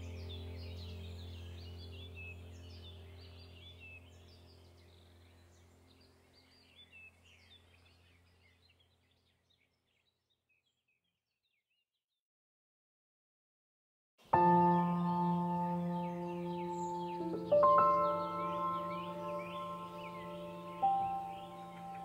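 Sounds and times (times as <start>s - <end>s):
low steady hum: 0.0s - 8.7s
small birds chirping: 0.0s - 12.0s, 14.2s - 22.0s.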